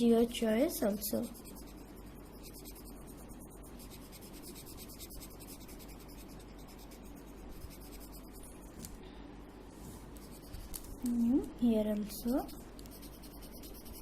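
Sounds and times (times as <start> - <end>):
colour pencil scratching on paper: 0.8 - 8.7, 10.1 - 11.1, 12.1 - 14.0.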